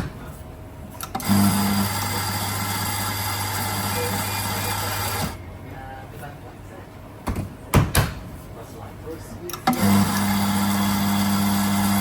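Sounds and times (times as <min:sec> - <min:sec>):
coffee grinder grinding beans: 0:09.8 - 0:12.0.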